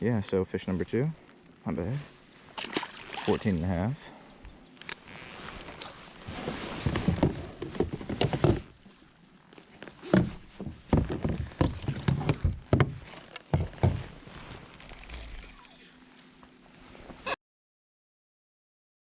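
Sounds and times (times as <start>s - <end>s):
gear knocking in a kayak: 10.1s - 14.1s.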